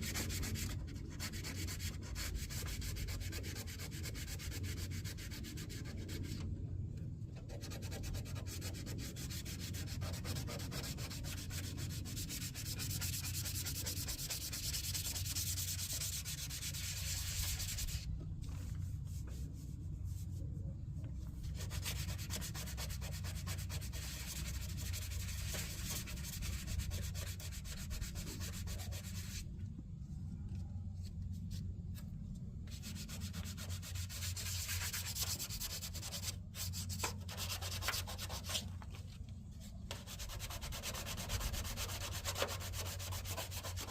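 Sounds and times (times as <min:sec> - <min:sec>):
sanding scratchy rasp: 0:00.0 - 0:06.4, 0:07.5 - 0:18.0, 0:21.5 - 0:29.4, 0:32.7 - 0:38.7, 0:39.9 - 0:43.9
steady low hum: 0:00.0 - 0:43.9.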